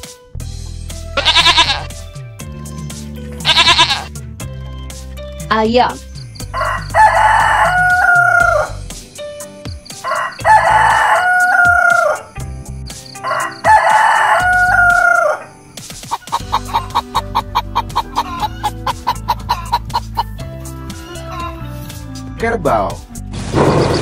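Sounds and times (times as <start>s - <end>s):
hens clucking: 1.2s - 1.9s, 13.2s - 22.0s
rooster crowing: 6.5s - 8.8s, 10.0s - 12.3s, 13.2s - 15.5s.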